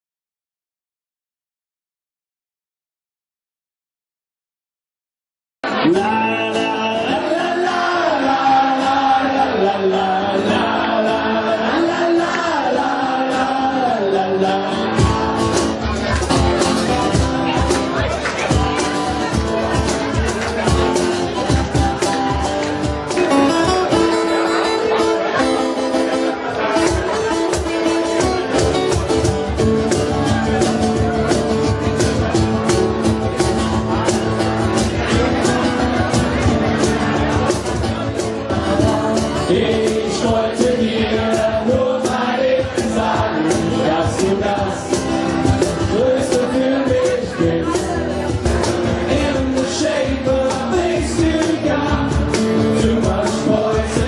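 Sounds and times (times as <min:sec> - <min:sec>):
guitar: 0:05.6 - 0:54.0
live rock band: 0:05.6 - 0:54.0
drum beat: 0:15.0 - 0:24.2, 0:26.9 - 0:54.0
person singing: 0:38.2 - 0:48.2, 0:48.8 - 0:54.0.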